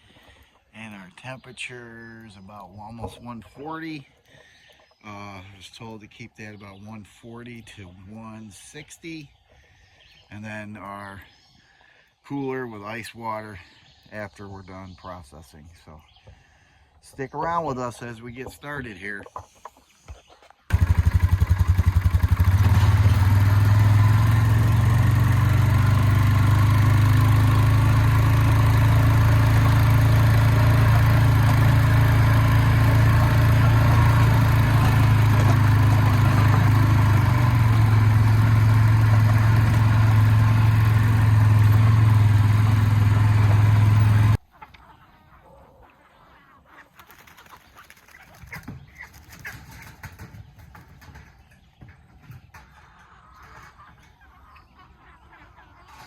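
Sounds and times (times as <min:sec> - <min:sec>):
motor running at steady pitch: 0:22.9 - 0:44.4.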